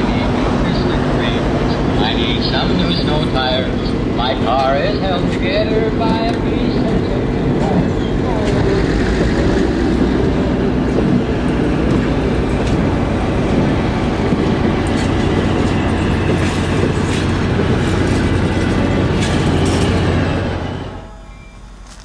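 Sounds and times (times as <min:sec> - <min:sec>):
train cars rumbling past: 0:00.0 - 0:22.0
wheels clicking over rail joints: 0:07.5 - 0:20.1.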